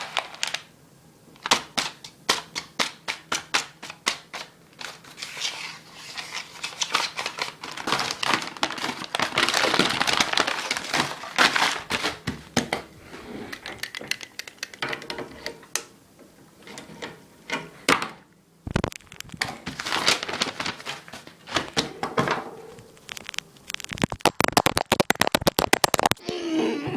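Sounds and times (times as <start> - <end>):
paper crinkling: 0.0 - 0.7, 3.9 - 12.5, 18.7 - 21.9, 22.7 - 26.2
sharp clicks: 23.0 - 26.2.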